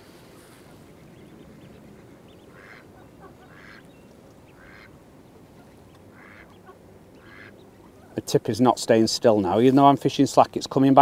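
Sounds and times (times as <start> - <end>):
low background noise: 0.0 - 11.0
water bird calling: 0.4 - 8.3.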